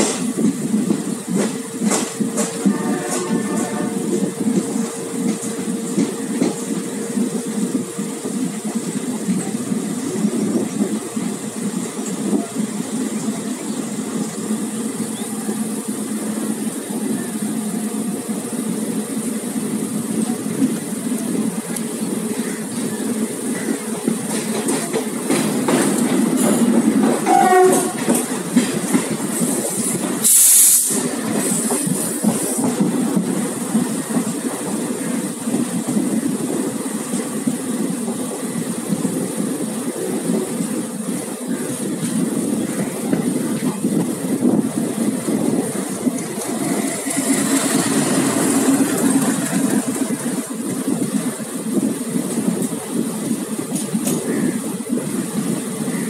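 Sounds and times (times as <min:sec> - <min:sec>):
train wheels rumbling on track: 0:00.0 - 0:56.0
train horn blast: 0:02.5 - 0:04.4, 0:27.2 - 0:28.2
loud hiss: 0:29.8 - 0:31.7.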